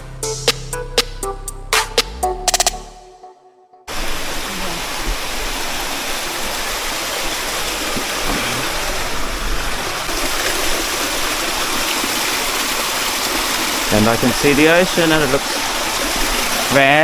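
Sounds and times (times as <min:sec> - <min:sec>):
stream water rushing: 0:03.9 - 0:17.0.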